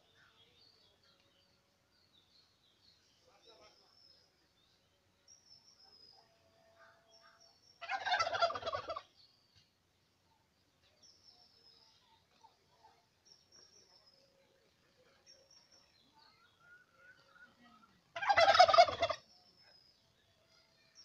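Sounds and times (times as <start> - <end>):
faint high chirps: 0.0 - 18.2
turkey gobbling: 7.8 - 9.1, 18.1 - 19.2.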